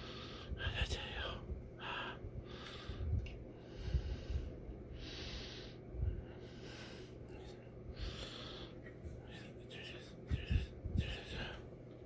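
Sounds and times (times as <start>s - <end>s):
breathy puffs of air: 0.0s - 0.6s, 1.8s - 7.3s, 7.9s - 8.9s
soft low thumps: 10.2s - 11.5s.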